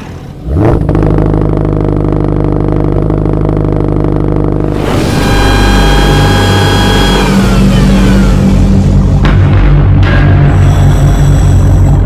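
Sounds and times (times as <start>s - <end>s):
car engine running: 0.0s - 12.0s
rush and high whine: 2.8s - 12.0s.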